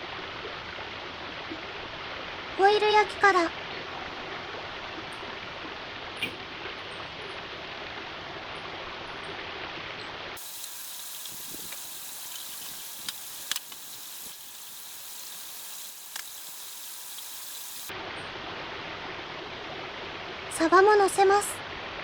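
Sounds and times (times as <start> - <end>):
bright steady hiss: 10.3 - 18.4
sharp clicks: 10.4 - 17.9.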